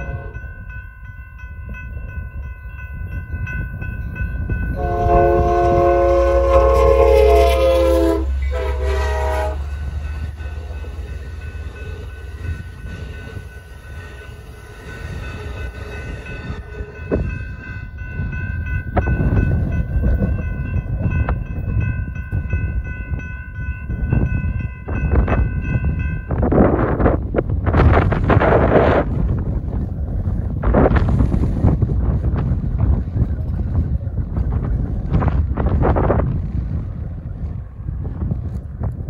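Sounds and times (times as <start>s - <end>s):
train horn sounding a chord: 0.0s - 0.5s, 4.7s - 10.5s
crossing warning bell ringing: 0.0s - 28.1s
low rumble of passing train: 0.0s - 39.0s
wind gusting on microphone: 0.0s - 39.0s.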